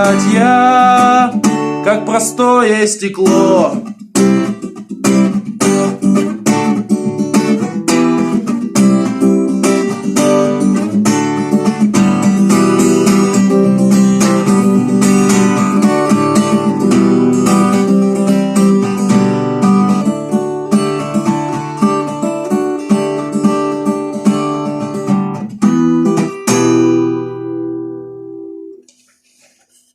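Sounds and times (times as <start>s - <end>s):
acoustic guitar strumming: 0.0s - 29.9s.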